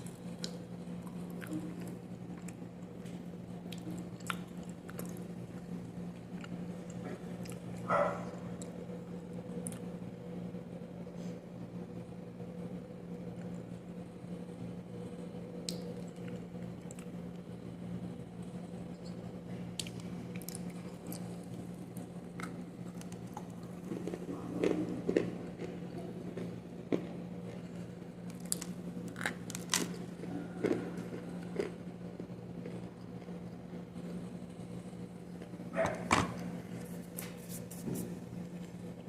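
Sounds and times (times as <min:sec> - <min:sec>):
steady low hum: 0:00.0 - 0:39.0
clay crunching while chewed: 0:19.8 - 0:33.8.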